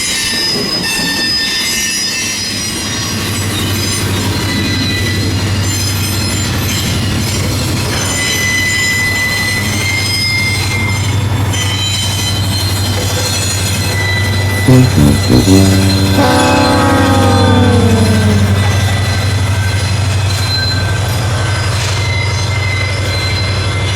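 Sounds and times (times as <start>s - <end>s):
train horn: 14.7s - 20.1s
diesel engine drone: 14.7s - 20.5s.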